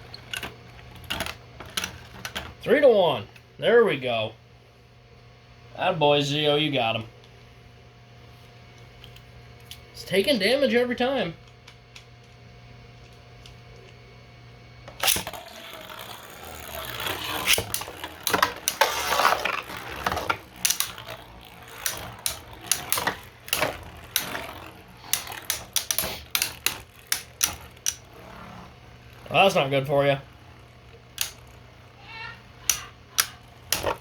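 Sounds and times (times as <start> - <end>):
spinning top launcher snap: 14.9 - 28.1, 31.1 - 31.6, 32.6 - 34.0
spinning tops clashing: 15.0 - 28.4, 29.1 - 34.0.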